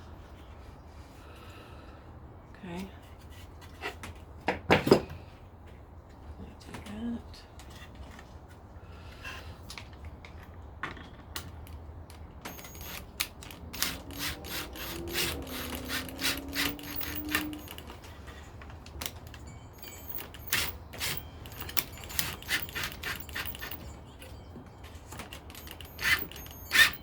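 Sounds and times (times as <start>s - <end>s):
small tools clicking and knocking: 12.5s - 18.2s, 18.8s - 27.0s.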